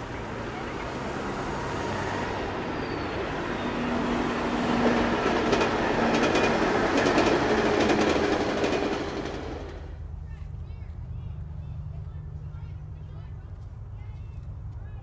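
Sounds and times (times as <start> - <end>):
train rumbling past: 0.0 - 14.7
wheels clicking over rail joints: 4.0 - 10.0.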